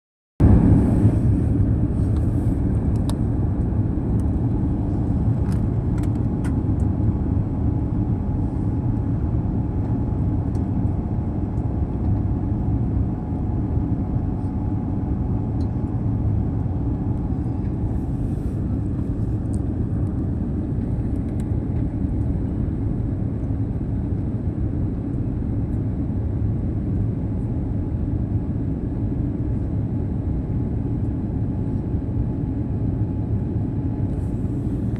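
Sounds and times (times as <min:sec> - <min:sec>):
rushing air: 0:00.4 - 0:03.3
jet engines rumbling: 0:00.4 - 0:26.7, 0:32.6 - 0:34.9.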